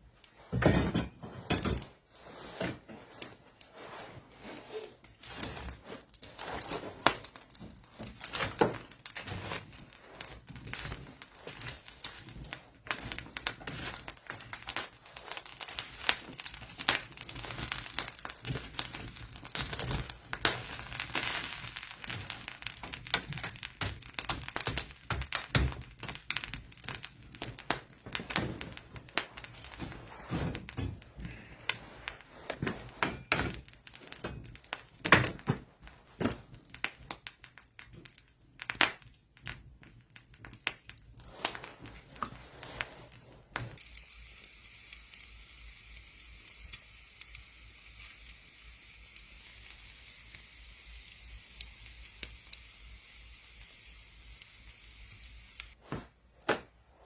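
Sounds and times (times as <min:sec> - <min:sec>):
crinkling: 0:00.0 - 0:52.7
objects knocking and clicking: 0:00.5 - 0:02.0, 0:16.1 - 0:42.4.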